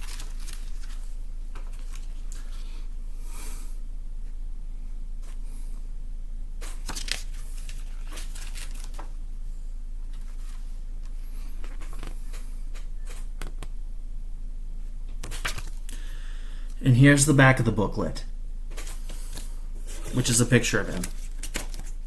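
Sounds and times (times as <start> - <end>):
paper pages rustling: 0.0 - 2.8, 6.6 - 9.2, 10.1 - 13.7, 15.2 - 15.9, 18.7 - 22.0
low hum: 0.0 - 22.0.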